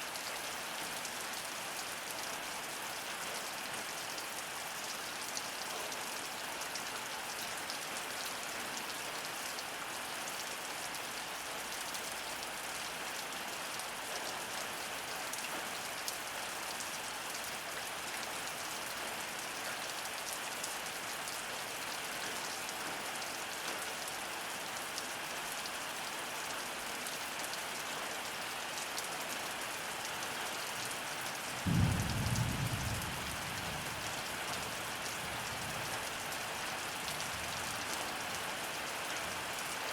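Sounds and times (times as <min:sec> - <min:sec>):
heavy rain falling: 0:25.6 - 0:39.9
low thunder rumble: 0:31.6 - 0:34.0.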